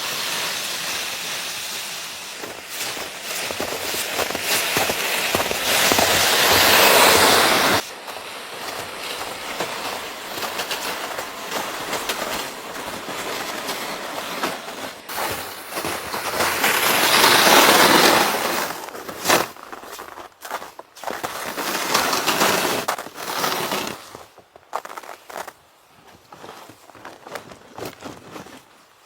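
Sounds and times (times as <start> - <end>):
blizzard wind gusting: 0.6 - 18.9.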